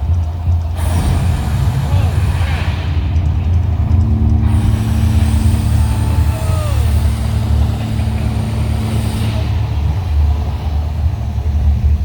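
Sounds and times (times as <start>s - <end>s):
vehicle engine rumble: 0.0s - 12.0s
falling whine: 3.6s - 11.6s.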